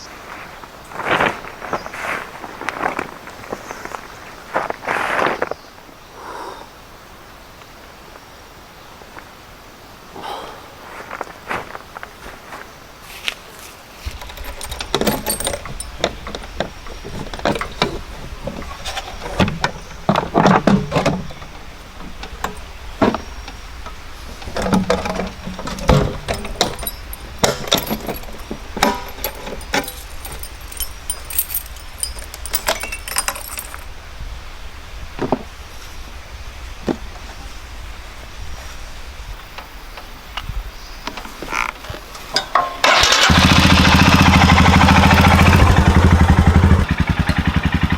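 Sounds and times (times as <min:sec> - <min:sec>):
clatter of objects handled: 0:13.1 - 0:33.9
metallic clinks and knocks: 0:14.1 - 0:23.3, 0:24.4 - 0:33.9, 0:42.3 - 0:43.0.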